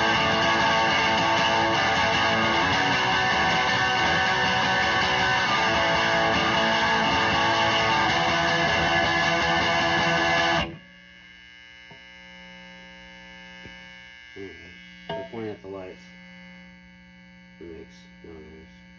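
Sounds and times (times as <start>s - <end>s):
electric guitar chords: 0.0s - 10.8s
amplifier hum and buzz: 0.0s - 18.9s.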